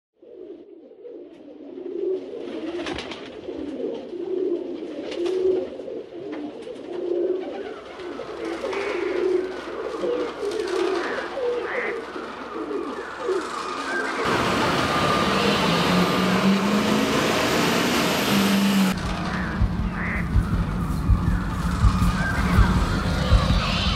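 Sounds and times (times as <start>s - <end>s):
pigeons cooing: 0.2s - 23.9s
birds chirping: 7.5s - 23.9s.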